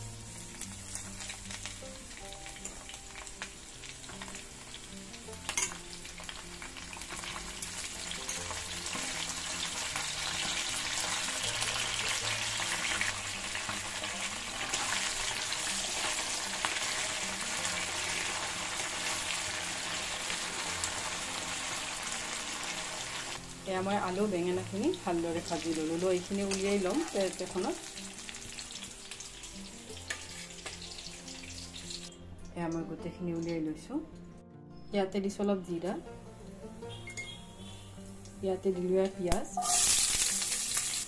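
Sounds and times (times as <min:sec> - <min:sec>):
vegetables sizzling in hot oil: 0:00.0 - 0:32.2, 0:36.8 - 0:41.0.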